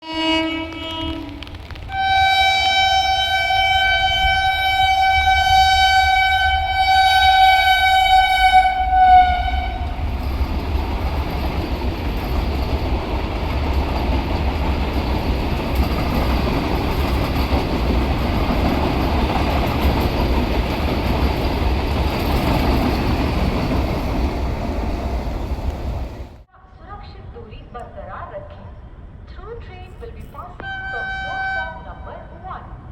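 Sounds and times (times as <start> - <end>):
train horn blasts: 0.0 - 10.1, 30.6 - 32.3
train wheels rumbling on rails: 0.0 - 26.5.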